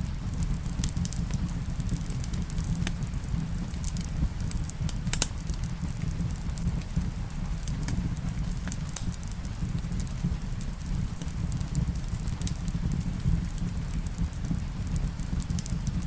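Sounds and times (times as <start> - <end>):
low rumble of rain: 0.0 - 16.0
wood fire crackling: 0.0 - 16.0
fire pops: 0.1 - 16.0.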